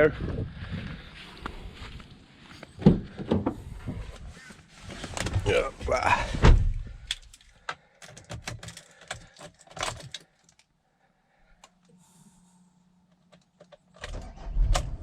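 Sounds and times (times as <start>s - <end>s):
keys clicking and rattling: 7.1s - 10.7s
faint steady hum: 10.6s - 13.8s.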